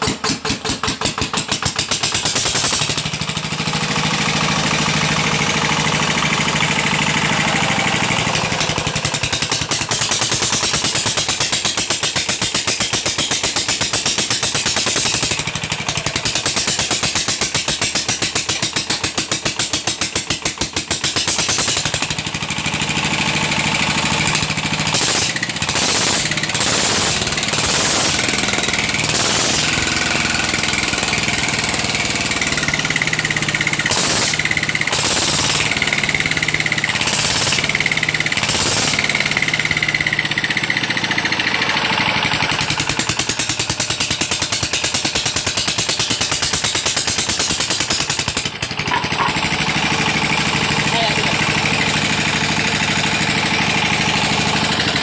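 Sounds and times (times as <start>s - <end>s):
diesel engine knocking: 0.0s - 55.0s
short noisy bursts: 24.9s - 30.9s, 33.9s - 35.8s, 38.4s - 39.4s.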